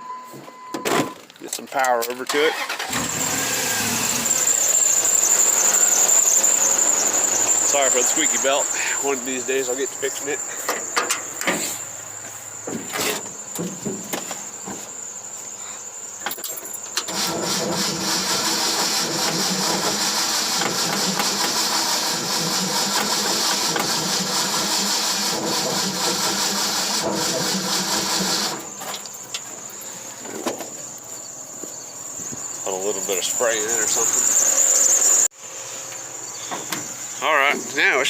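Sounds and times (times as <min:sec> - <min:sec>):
squealing accessory belt: 0:01.8 - 0:13.6, 0:14.3 - 0:35.3
car engine cranking on starter: 0:01.9 - 0:12.0, 0:16.8 - 0:29.3.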